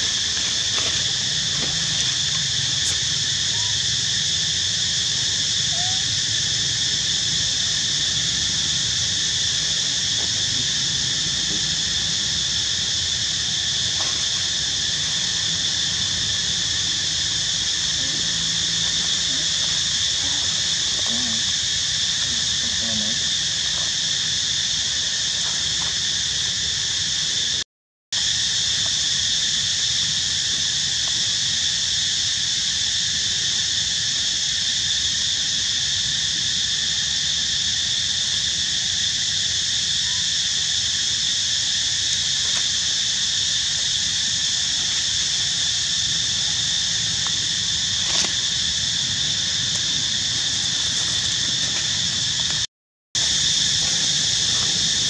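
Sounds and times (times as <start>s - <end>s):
insects chorus: 0.0s - 27.6s, 28.2s - 55.0s.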